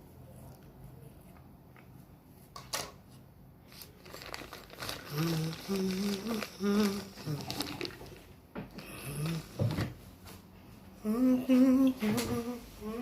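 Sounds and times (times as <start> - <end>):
crinkling: 3.6 - 10.4
man humming: 11.0 - 13.0.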